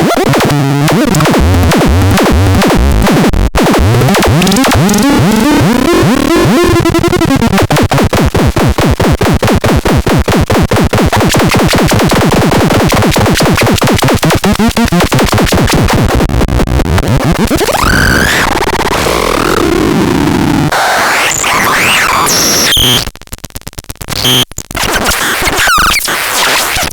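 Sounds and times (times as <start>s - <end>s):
rapid synthesizer pulses: 0.0s - 23.1s, 24.2s - 26.9s
noisy warbling texture: 3.8s - 7.6s, 11.0s - 15.8s, 17.2s - 23.0s.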